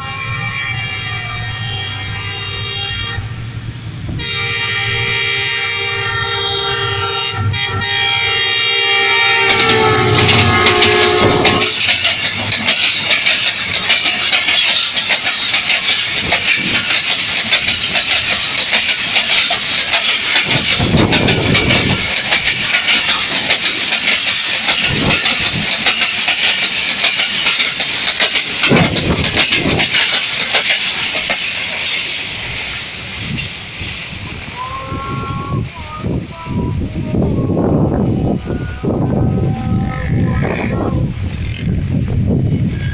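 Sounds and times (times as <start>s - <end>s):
train passing at speed: 0.0s - 42.9s
wheels clicking over rail joints: 8.9s - 34.6s.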